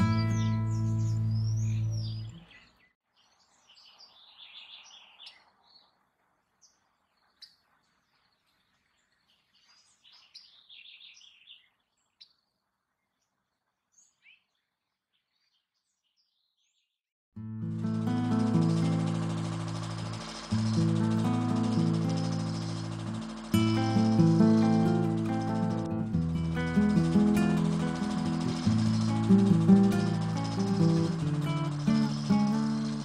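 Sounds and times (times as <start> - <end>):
light outdoor hiss: 0.0 - 14.2, 17.4 - 33.0
small birds chirping and twittering: 0.0 - 17.0, 17.8 - 33.0.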